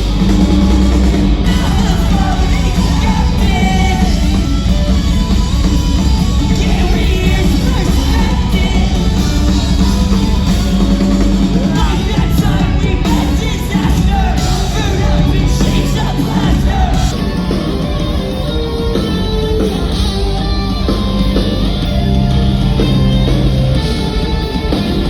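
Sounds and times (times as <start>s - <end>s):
person singing: 0.0s - 5.4s, 6.0s - 20.4s
drums: 0.0s - 25.0s
loud amplified guitars: 0.0s - 25.0s.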